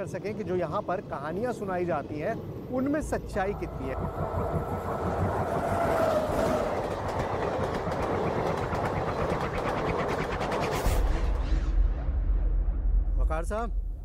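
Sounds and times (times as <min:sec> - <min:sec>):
passing train rumble: 0:00.0 - 0:14.0
train wheels clacking over rail joints: 0:03.5 - 0:10.8.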